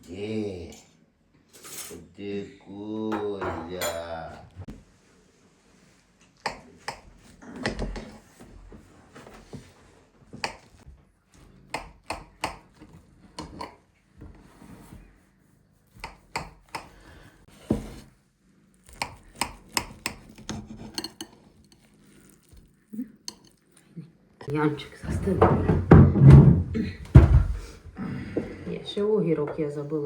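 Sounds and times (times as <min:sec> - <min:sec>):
tableware clicking and knocking: 0:03.2 - 0:04.1, 0:19.4 - 0:21.4.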